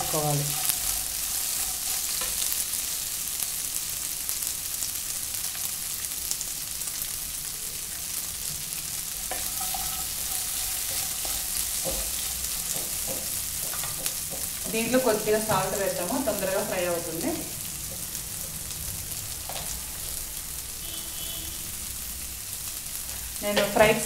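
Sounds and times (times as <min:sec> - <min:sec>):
wooden spatula scraping a pan: 0:00.0 - 0:02.7, 0:09.2 - 0:14.8
beans sizzling in hot oil: 0:00.0 - 0:24.0.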